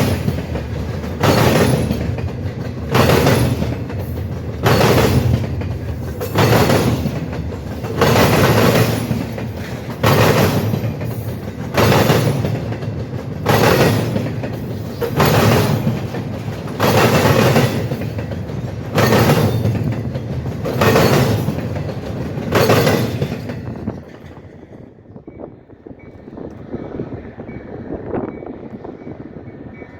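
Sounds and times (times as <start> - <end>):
train wheels banging over crossing: 0.0 - 25.0
train rolling rumble: 0.0 - 29.9.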